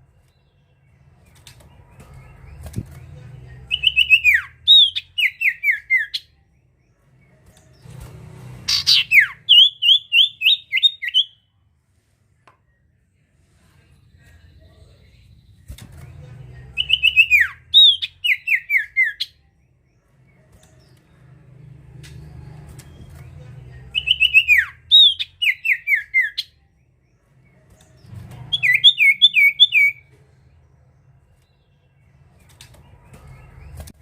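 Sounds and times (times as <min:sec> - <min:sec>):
bird whistling song: 0:03.7 - 0:06.4, 0:08.7 - 0:11.4, 0:16.8 - 0:19.5, 0:23.9 - 0:26.6, 0:28.5 - 0:30.1
faint low hum: 0:11.4 - 0:17.8.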